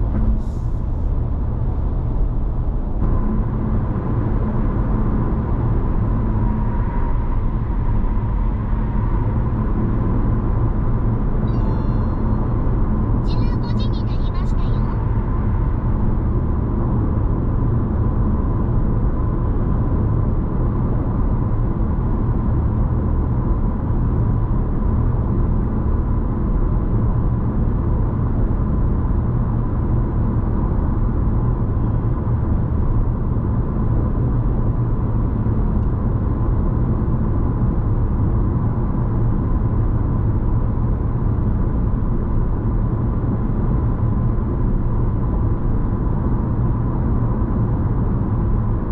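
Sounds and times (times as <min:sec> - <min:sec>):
car cabin road and engine noise: 0:00.0 - 0:48.9
faint high whine: 0:11.4 - 0:15.0.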